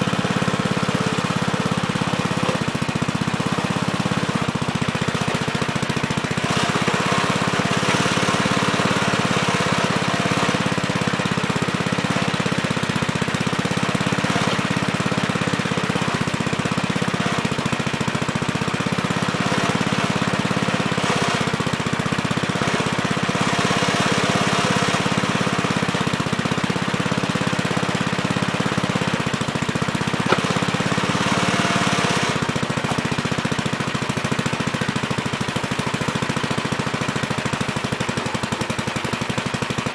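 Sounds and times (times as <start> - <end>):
backhoe digging: 0.0 - 39.9.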